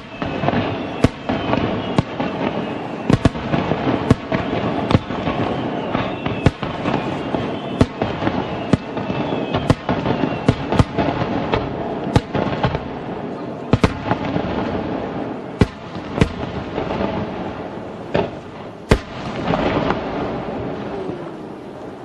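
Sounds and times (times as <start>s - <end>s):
falling whistles: 0.0s - 11.4s
firework bangs: 0.0s - 22.0s
firework crackling: 0.0s - 22.0s.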